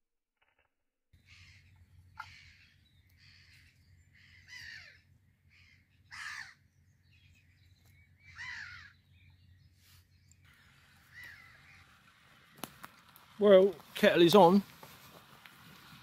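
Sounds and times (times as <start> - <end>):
harsh bird calls: 1.2 - 12.4.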